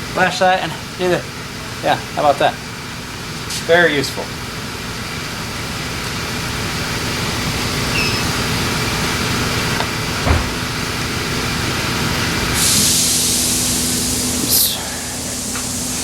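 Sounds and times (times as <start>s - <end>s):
steady mechanical hum: 0.0s - 16.0s
loud hiss: 12.4s - 16.0s.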